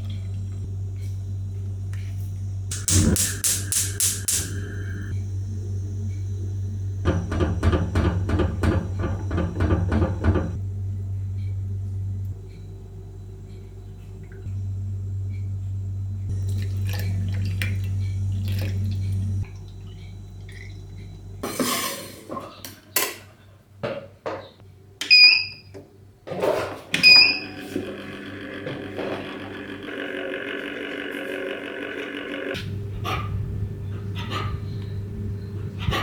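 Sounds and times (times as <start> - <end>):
steady low hum: 0.0 - 21.8, 27.4 - 36.0
dishes and utensils clinking: 21.4 - 24.5.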